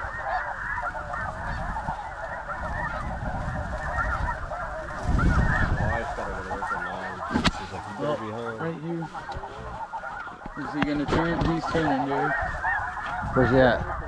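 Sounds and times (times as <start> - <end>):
geese honking: 0.0 - 14.0.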